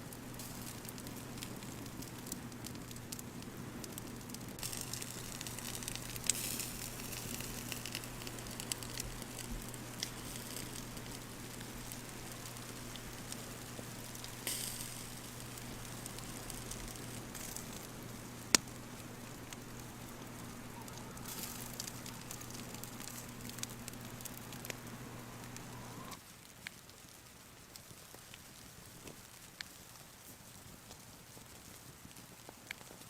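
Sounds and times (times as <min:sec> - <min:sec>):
fire hissing: 0:00.0 - 0:26.2
campfire crackling: 0:00.0 - 0:33.0.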